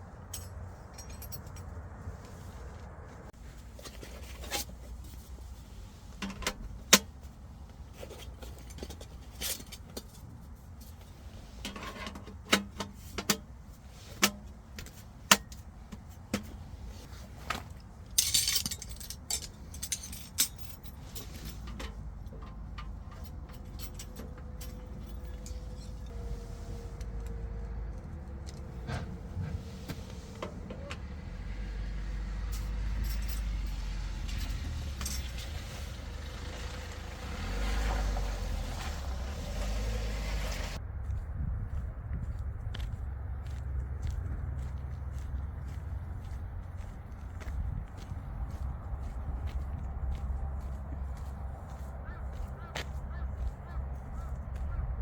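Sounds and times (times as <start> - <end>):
low rumble: 40.6 - 51.7.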